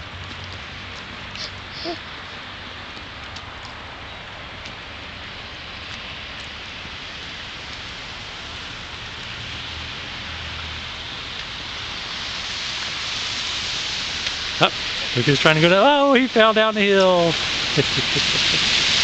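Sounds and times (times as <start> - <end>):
blizzard wind hissing: 5.0 - 19.0.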